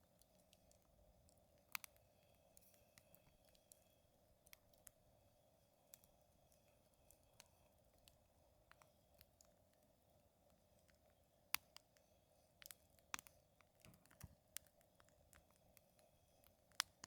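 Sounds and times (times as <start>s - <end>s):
wood fire crackling: 5.8s - 17.0s.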